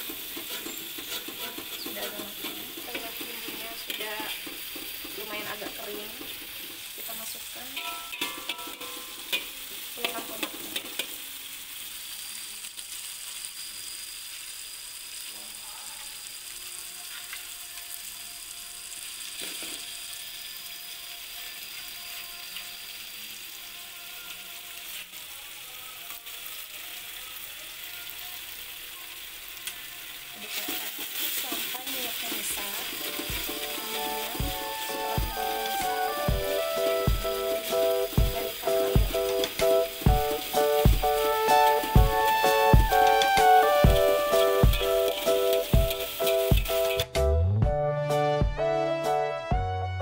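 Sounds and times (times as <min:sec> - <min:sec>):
metal spatula scraping: 0:00.0 - 0:11.2, 0:30.4 - 0:47.1
paste sizzling in a wok: 0:00.0 - 0:47.2.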